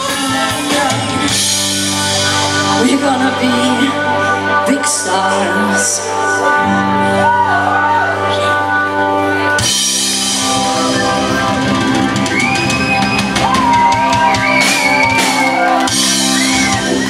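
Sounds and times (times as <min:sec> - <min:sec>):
drum kit with cymbals: 0:00.0 - 0:03.0, 0:09.6 - 0:17.0
guitar melody: 0:00.0 - 0:17.0
rock band playing: 0:00.0 - 0:17.0.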